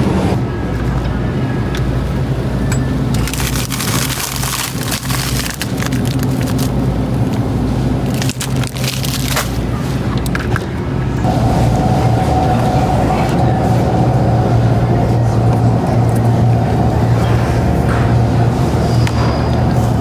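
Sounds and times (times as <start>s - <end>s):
dense crackling crunching noise: 3.2s - 9.7s
low vehicle hum: 10.8s - 20.0s.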